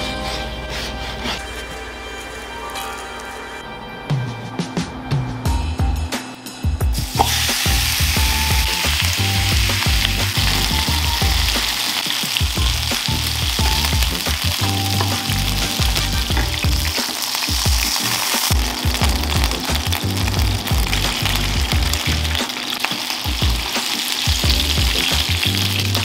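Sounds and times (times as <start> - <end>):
chicken sizzling in oil: 7.0 - 26.0.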